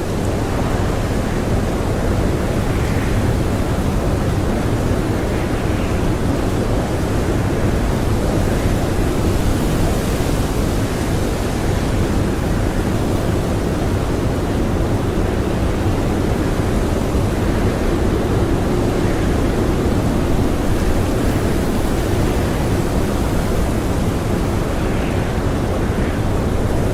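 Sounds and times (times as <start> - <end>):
strong blizzard wind: 0.0 - 26.9.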